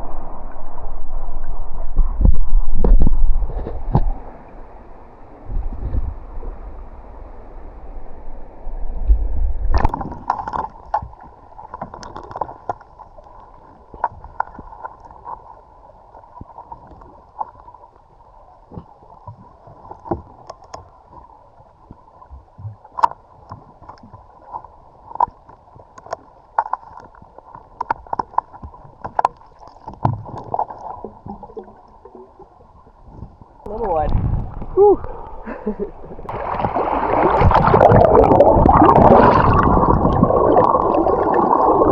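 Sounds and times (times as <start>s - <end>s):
muffled water sloshing: 0.0s - 41.9s
water splash: 9.4s - 15.4s, 36.2s - 41.9s.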